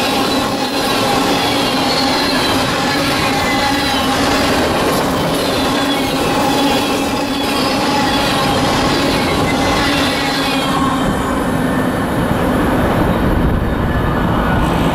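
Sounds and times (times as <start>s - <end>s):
steel wheels rumbling on rail: 0.0s - 14.9s
thin wheel squealing: 0.2s - 11.0s.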